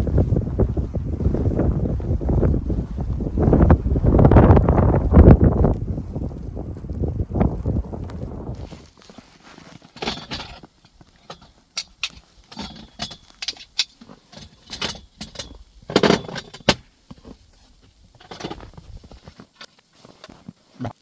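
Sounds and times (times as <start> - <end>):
rustling: 8.5 - 21.0
objects clicking and clinking: 9.9 - 16.8.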